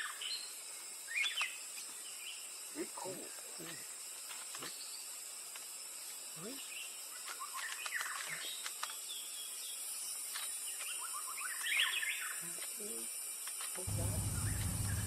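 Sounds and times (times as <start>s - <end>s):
insect hiss: 0.0s - 15.0s
birds chirping: 13.9s - 15.0s
low bird call: 14.0s - 15.0s.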